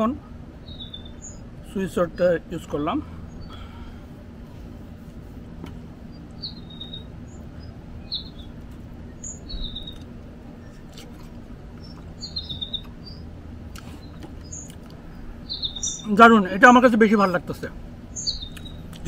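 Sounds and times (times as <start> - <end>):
steady low hum: 0.0 - 19.0
small bird chirping: 0.6 - 2.3, 3.2 - 3.7, 5.9 - 19.0.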